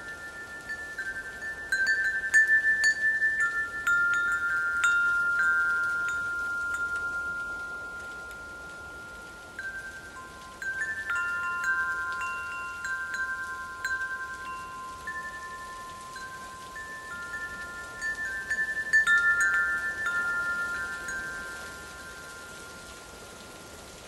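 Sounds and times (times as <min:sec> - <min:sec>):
steady hiss: 0:00.0 - 0:24.0
wind chimes ringing: 0:00.0 - 0:24.0.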